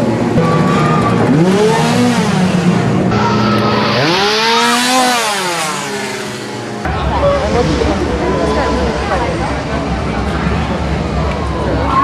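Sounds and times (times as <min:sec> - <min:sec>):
small engine revving: 0:00.0 - 0:06.9
noisy wash: 0:00.0 - 0:12.0.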